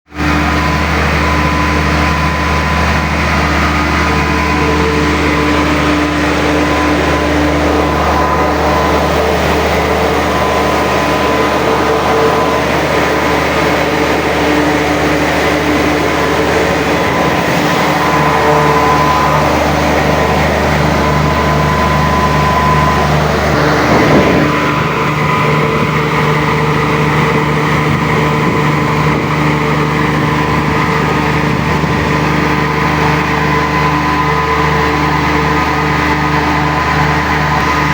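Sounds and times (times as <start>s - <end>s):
diesel engine running: 0.1s - 37.9s.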